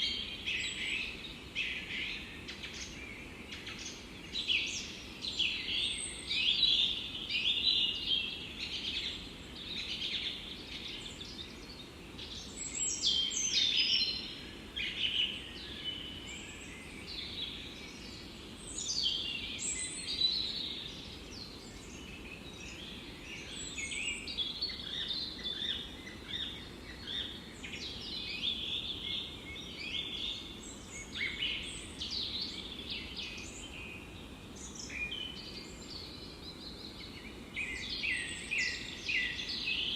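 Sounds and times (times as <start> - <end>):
forest birds chirping and singing: 0.0 - 39.9
soft steady background hiss: 0.0 - 39.9.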